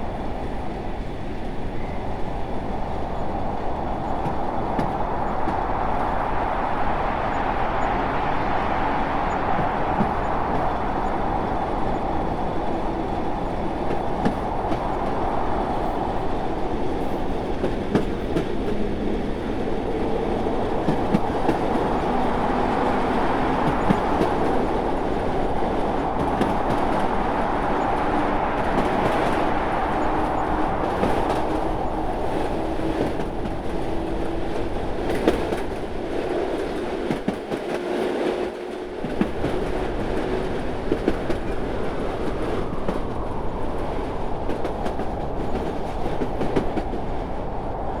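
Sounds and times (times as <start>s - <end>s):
train rumbling on rails: 0.0s - 48.0s.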